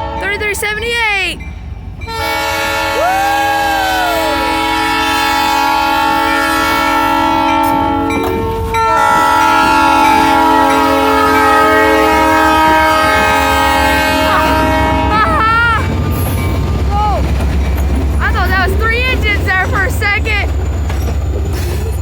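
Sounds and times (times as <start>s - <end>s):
locomotive air horn blasts: 0.0s - 0.9s, 2.1s - 16.2s
train rumble: 0.0s - 22.0s.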